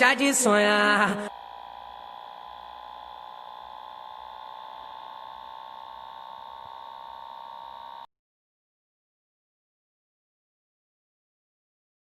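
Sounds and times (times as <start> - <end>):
held electronic tone: 0.7 - 8.1.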